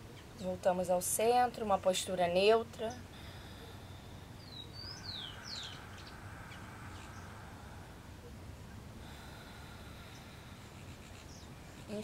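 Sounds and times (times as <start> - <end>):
low background rumble: 0.0 - 12.0
bird chirping: 2.8 - 8.9, 10.0 - 12.0.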